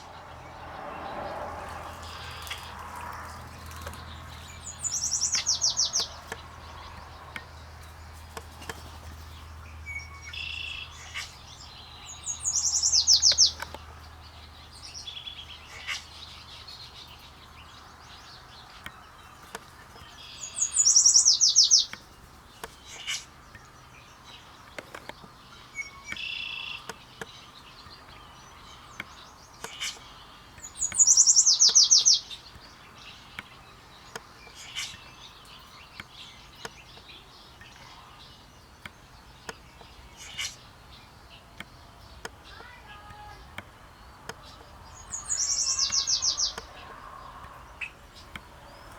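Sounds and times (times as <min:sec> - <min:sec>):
other birds chipping and calling: 0:00.0 - 0:48.9.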